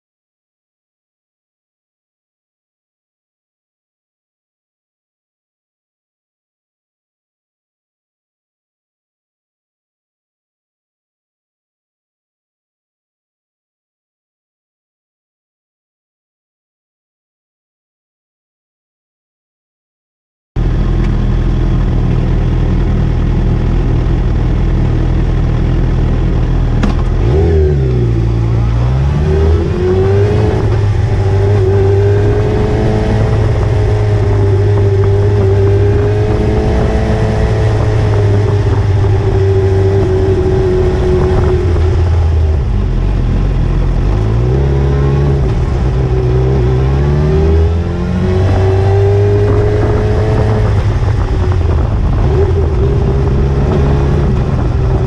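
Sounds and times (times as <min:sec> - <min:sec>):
motorcycle engine running: 0:20.6 - 0:55.0.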